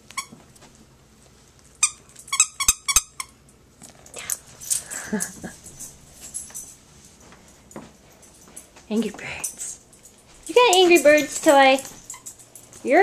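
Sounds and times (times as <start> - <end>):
dog toy squeaking: 1.8 - 3.3.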